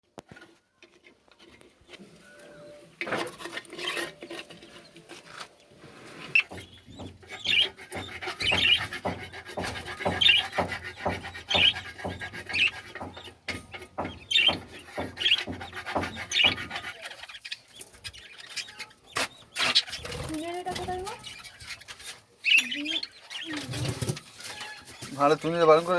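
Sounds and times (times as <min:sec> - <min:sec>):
small clicks and scrapes: 0:00.1 - 0:02.3, 0:03.0 - 0:10.7
budgerigars chirping: 0:06.3 - 0:25.9.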